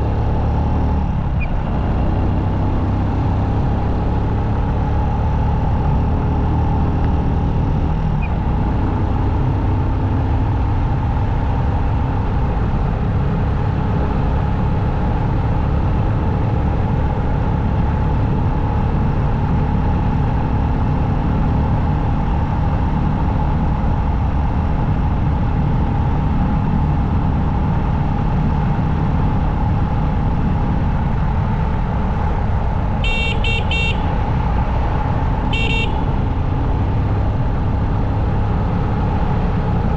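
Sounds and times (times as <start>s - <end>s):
motorcycle engine: 28.4s - 39.9s
short horn beeps: 33.0s - 34.1s, 35.5s - 36.1s.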